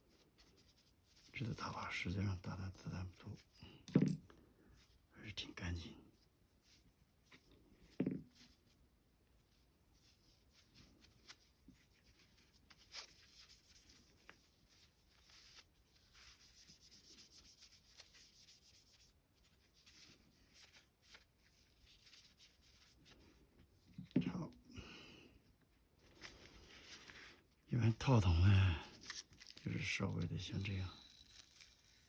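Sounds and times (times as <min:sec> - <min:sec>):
cloth rubbing on metal parts: 0:00.0 - 0:02.1, 0:06.1 - 0:23.9.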